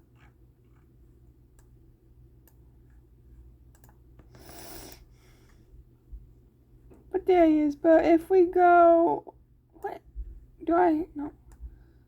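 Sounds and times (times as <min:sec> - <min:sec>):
low steady hum: 0:00.0 - 0:12.0
computer clicks: 0:03.7 - 0:04.0
short breathy hiss: 0:04.3 - 0:05.6.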